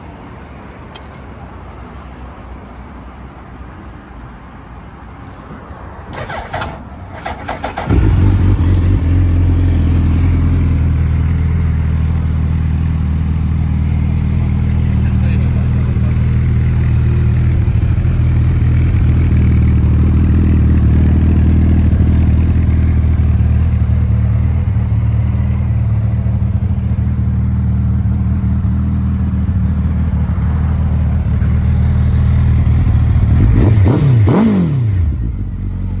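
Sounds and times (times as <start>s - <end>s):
motorcycle engine idling: 6.2s - 33.6s, 35.0s - 36.0s
motorcycle engine revving: 6.2s - 36.0s.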